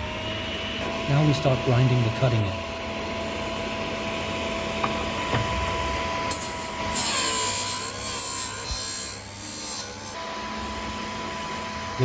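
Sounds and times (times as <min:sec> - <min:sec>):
grinder motor whine: 0:00.0 - 0:12.0
drill bit rasping on grinding wheel: 0:06.3 - 0:10.2.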